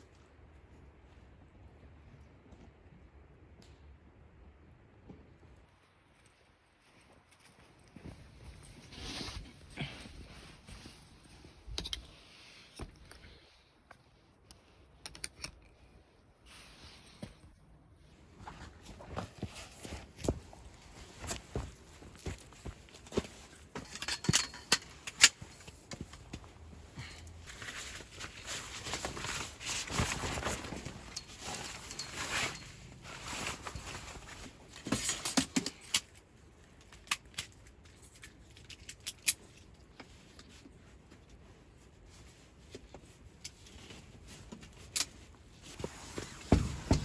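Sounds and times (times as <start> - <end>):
camp gear rustling: 5.9 - 14.9, 15.8 - 47.0
small clicks and knocks: 15.0 - 15.8.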